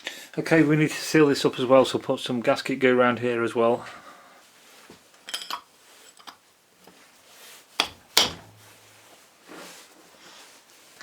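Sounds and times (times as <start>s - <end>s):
sharp knocks: 7.8s - 8.7s.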